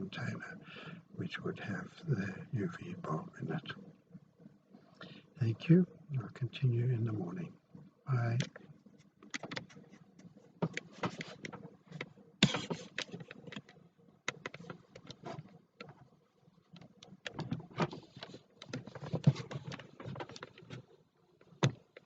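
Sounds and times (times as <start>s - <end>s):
irregular clicks and knocks: 8.3s - 22.0s.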